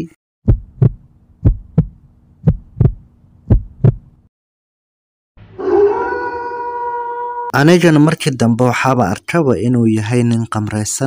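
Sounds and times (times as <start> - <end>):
heartbeat lub-dub beats: 0.4 - 4.1.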